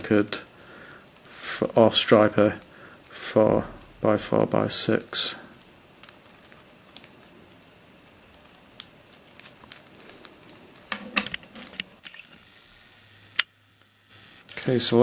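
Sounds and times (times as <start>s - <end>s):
plastic rustling: 1.0s - 12.4s.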